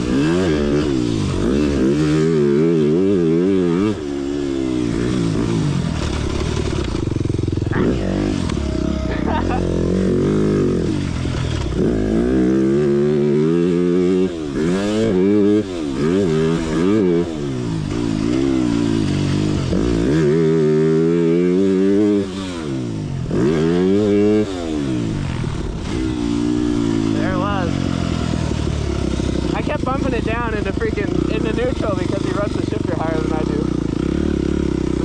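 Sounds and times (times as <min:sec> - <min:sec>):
motocross bike engine revving: 0:00.0 - 0:35.0.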